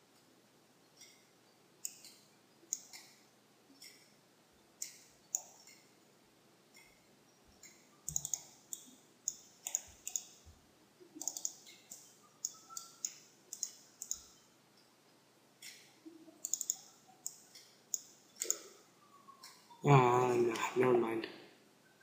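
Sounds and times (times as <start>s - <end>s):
computer mouse clicking: 1.0s - 3.2s, 3.8s - 4.2s, 4.8s - 5.9s, 7.6s - 10.4s, 11.2s - 14.4s, 15.6s - 19.8s.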